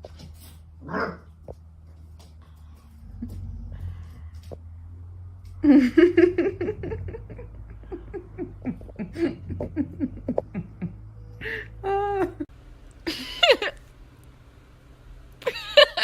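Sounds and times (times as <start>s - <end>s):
person laughing: 5.6s - 12.5s, 13.1s - 13.8s, 15.4s - 16.0s.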